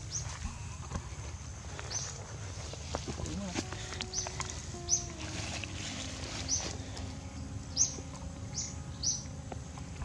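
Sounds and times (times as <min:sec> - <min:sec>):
bird chirping: 0:00.0 - 0:02.5, 0:03.7 - 0:10.0.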